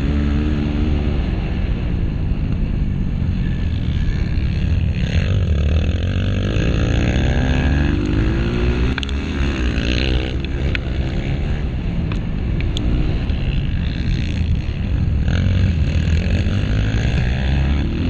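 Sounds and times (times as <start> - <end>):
dirt bike engine revving: 0.0 - 1.8, 2.9 - 18.0
wind noise: 0.0 - 18.0.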